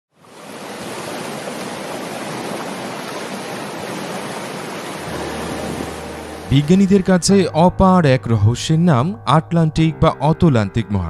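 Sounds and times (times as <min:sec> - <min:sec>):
rushing water: 0:00.1 - 0:07.3
low hum: 0:05.0 - 0:08.2.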